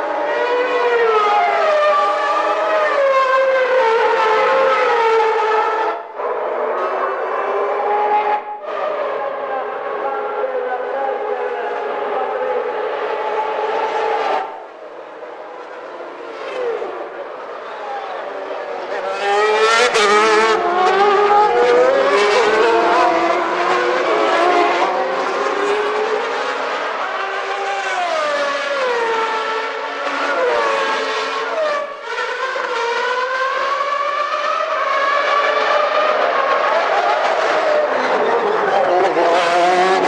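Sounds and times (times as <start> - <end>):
racing car engines at high revs: 0.0 - 40.0.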